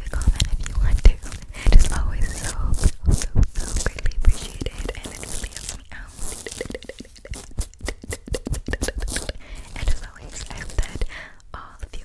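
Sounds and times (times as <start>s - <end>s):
wet mouth clicks and smacks: 4.6s - 11.9s.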